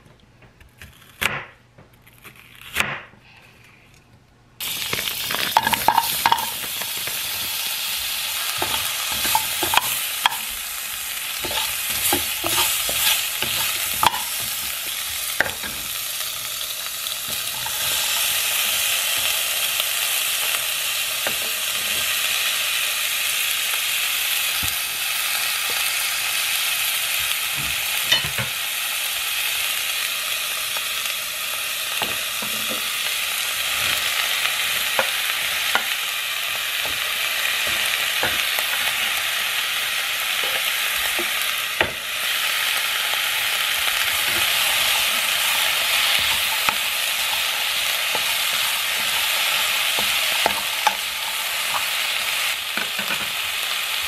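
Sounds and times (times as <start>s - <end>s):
food sizzling in a frying pan: 4.6s - 54.0s
wooden spatula scraping pan: 11.4s - 14.7s.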